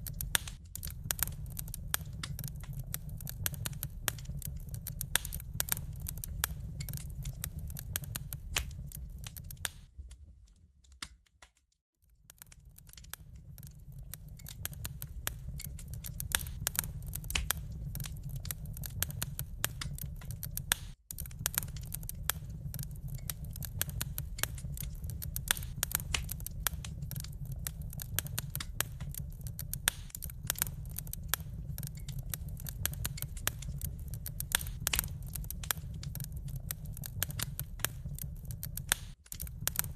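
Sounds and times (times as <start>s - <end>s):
low fire rumble: 0.0s - 11.1s, 12.0s - 39.9s
wood fire crackling: 0.0s - 39.9s.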